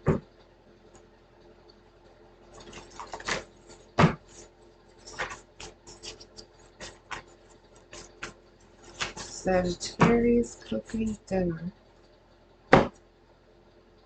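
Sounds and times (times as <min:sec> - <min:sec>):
small objects clicking and rustling: 0:02.5 - 0:09.5.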